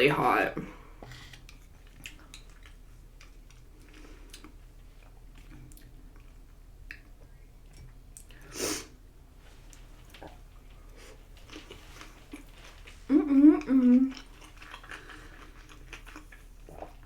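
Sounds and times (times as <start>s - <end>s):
person chewing: 1.1s - 8.4s, 9.7s - 17.0s
breath through the nose: 8.3s - 8.9s.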